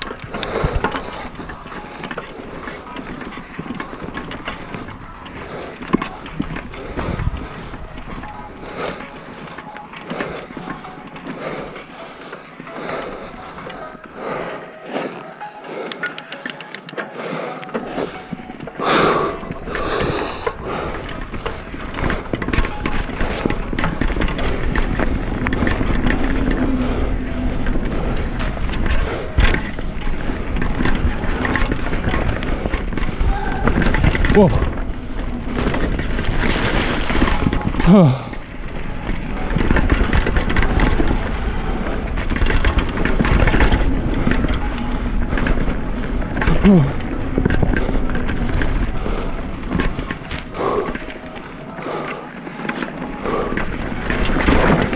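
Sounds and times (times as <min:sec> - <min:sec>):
tyre noise: 0:00.0 - 0:15.6, 0:16.3 - 0:54.9
bike clattering and rattling: 0:00.0 - 0:54.9
wind rumble on microphone: 0:06.4 - 0:08.3
tyre roar: 0:50.3 - 0:52.3.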